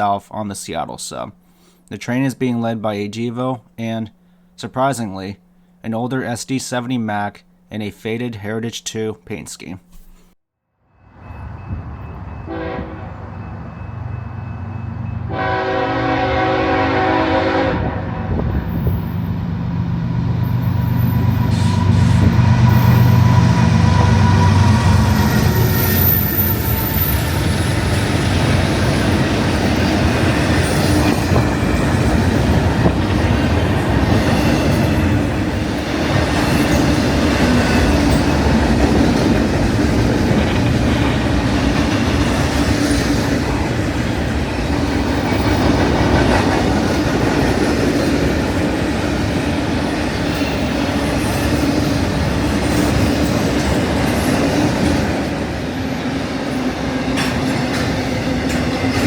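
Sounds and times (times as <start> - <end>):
freight train rumbling past: 11.0 - 59.0
train wheels clattering on rails: 20.8 - 59.0.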